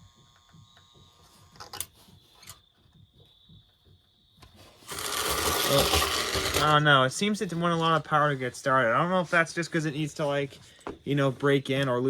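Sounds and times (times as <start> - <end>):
toy train clicks: 4.8 - 6.8.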